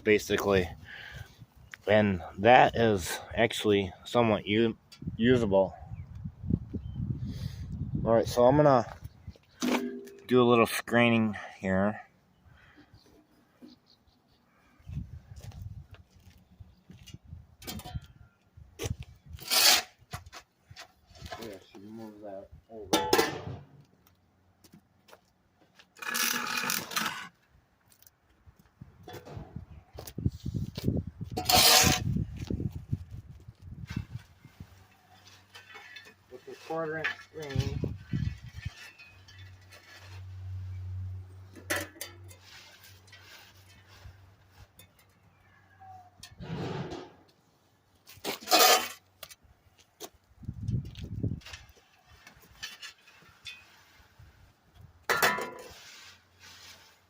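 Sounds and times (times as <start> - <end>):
wood chips scraping across mesh: 34.2 - 41.1, 42.2 - 44.8, 55.5 - 57.0.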